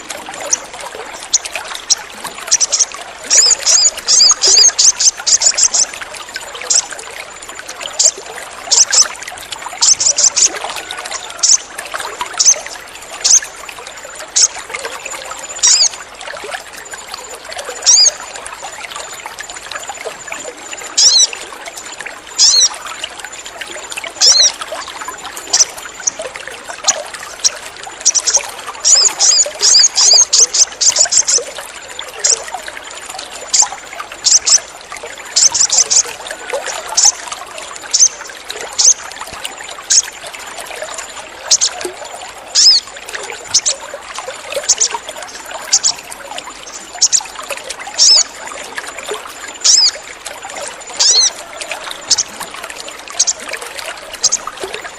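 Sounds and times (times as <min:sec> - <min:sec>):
trickle of running water: 0:00.0 - 0:54.9
bird chipping high-pitched: 0:01.3 - 0:05.9, 0:06.6 - 0:06.9, 0:08.0 - 0:09.1, 0:09.8 - 0:11.7, 0:12.4 - 0:12.6, 0:13.2 - 0:13.5, 0:15.4 - 0:15.9, 0:17.8 - 0:18.2, 0:20.9 - 0:21.4, 0:22.4 - 0:22.8, 0:24.2 - 0:24.6, 0:26.8 - 0:31.4, 0:33.5 - 0:34.7, 0:35.4 - 0:36.1, 0:36.8 - 0:37.2, 0:37.9 - 0:39.0, 0:39.9 - 0:40.1, 0:41.5 - 0:41.8, 0:42.6 - 0:43.8, 0:44.6 - 0:45.0, 0:45.6 - 0:47.3, 0:48.0 - 0:48.3, 0:49.6 - 0:50.0, 0:50.9 - 0:52.4, 0:53.1 - 0:53.4, 0:54.1 - 0:54.5.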